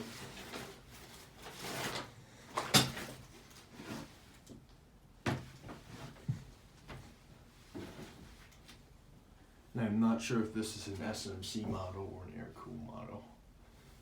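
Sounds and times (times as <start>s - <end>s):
ceiling fan running: 0.0s - 14.0s.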